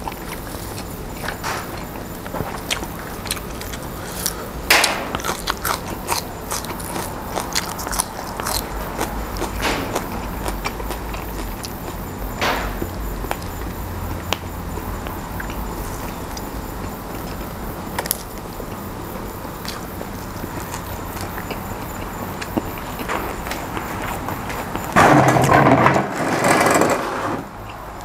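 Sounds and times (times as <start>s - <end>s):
person chewing crisp greens: 0.0s - 25.0s.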